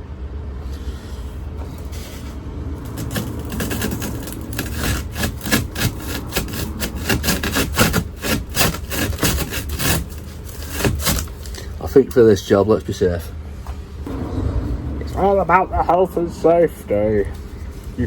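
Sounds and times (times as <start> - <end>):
glass scraping in window channel: 0.7 - 13.0.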